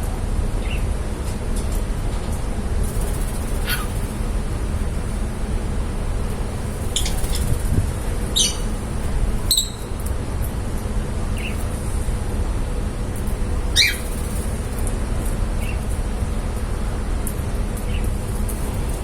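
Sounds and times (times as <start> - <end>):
steady low rumble: 2.0 - 19.0
lovebirds chirping: 3.4 - 4.0, 6.8 - 7.6, 8.2 - 8.8, 9.4 - 10.0, 13.7 - 14.2.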